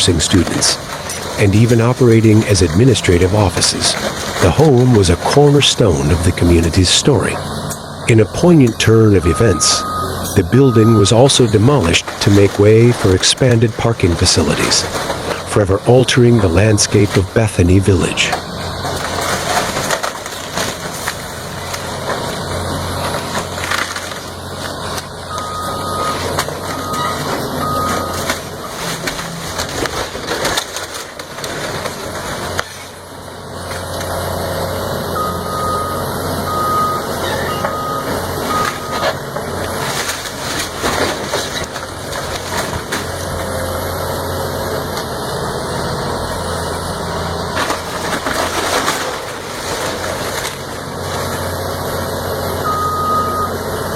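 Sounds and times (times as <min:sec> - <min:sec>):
heavy machinery engine running: 0:00.0 - 0:53.9
reversing alarm beeping: 0:08.1 - 0:12.0, 0:25.3 - 0:28.9, 0:35.1 - 0:39.2, 0:52.6 - 0:53.7.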